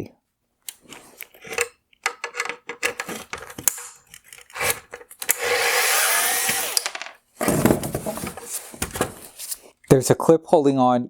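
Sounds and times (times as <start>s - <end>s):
plastic parts clicking: 0.7s - 5.6s
plastic scraping against plastic: 0.8s - 5.3s, 7.4s - 9.9s.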